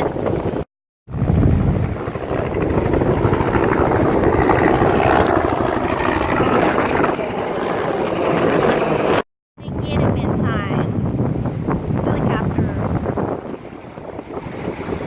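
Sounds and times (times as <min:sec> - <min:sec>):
helicopter rotors chopping: 0:00.4 - 0:09.2.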